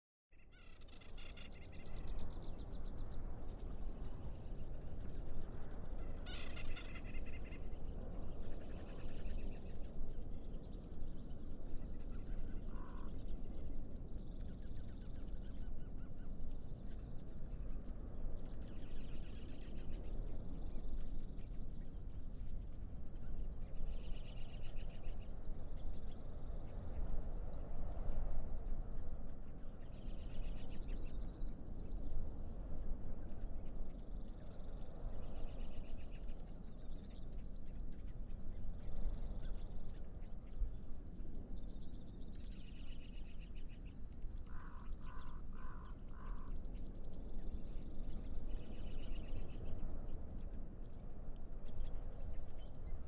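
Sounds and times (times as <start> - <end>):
birds singing trilled phrases: 33.9 - 50.6.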